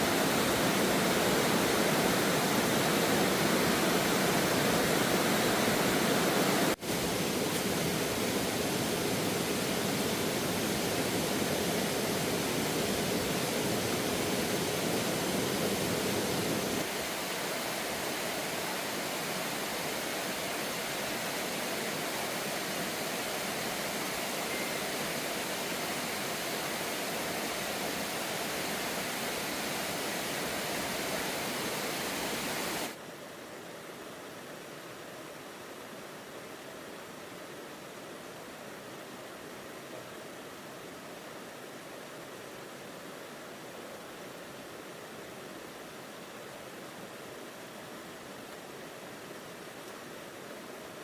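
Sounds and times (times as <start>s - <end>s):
falling water rushing: 0.0s - 33.0s.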